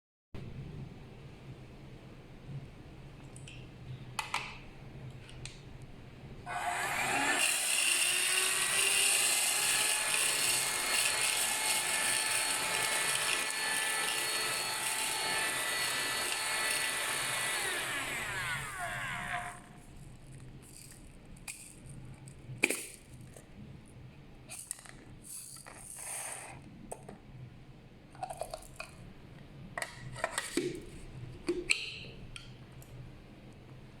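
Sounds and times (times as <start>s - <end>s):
handheld vacuum cleaner motor: 6.5s - 19.7s.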